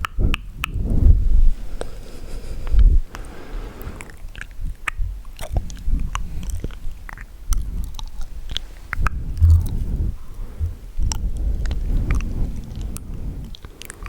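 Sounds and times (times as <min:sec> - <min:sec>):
wet lip and tongue clicks: 0:00.0 - 0:01.0, 0:04.0 - 0:10.0, 0:11.0 - 0:14.0
low bump: 0:09.0 - 0:12.6.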